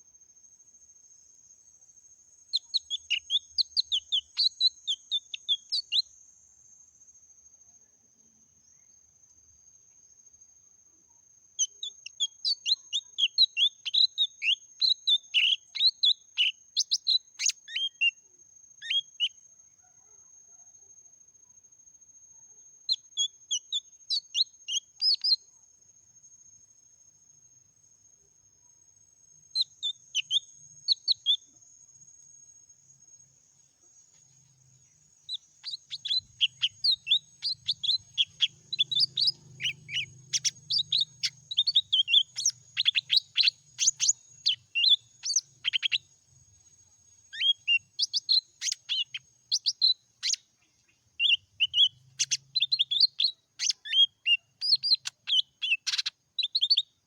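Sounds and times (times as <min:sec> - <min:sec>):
bird singing: 0:02.5 - 0:06.1, 0:11.6 - 0:20.3, 0:22.9 - 0:25.5, 0:29.4 - 0:31.6, 0:34.2 - 0:57.0.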